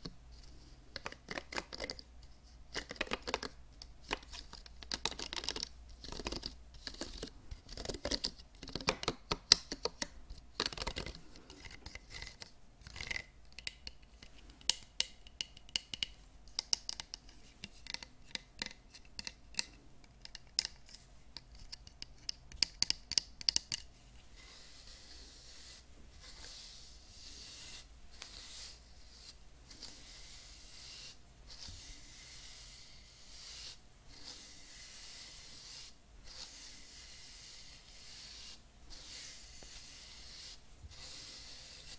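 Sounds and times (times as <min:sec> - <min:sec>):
hairbrush bristles scratching: 0:24.3 - 0:41.9
bristles rasping through hair: 0:24.4 - 0:41.9.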